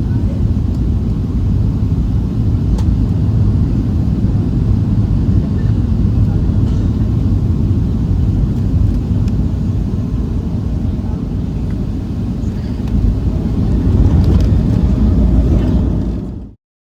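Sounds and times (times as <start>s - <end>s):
airliner low rumble: 0.0s - 16.6s.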